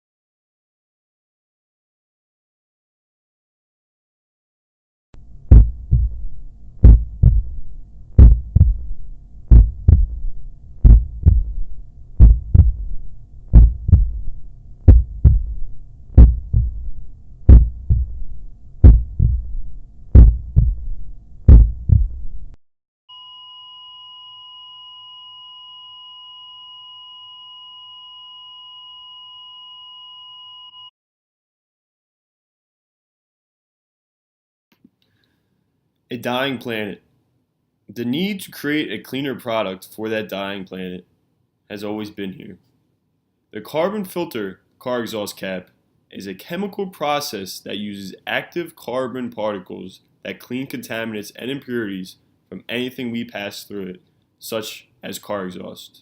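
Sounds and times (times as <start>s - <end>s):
heartbeat thumps: 5.2s - 22.6s
heart monitor flatline beep: 23.1s - 30.9s.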